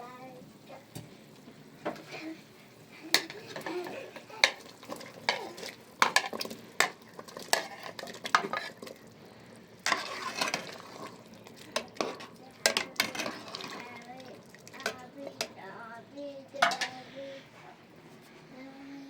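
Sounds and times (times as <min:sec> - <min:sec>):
metal utensil knocking in a pot: 0:06.0 - 0:07.6, 0:11.8 - 0:13.3, 0:16.6 - 0:17.0.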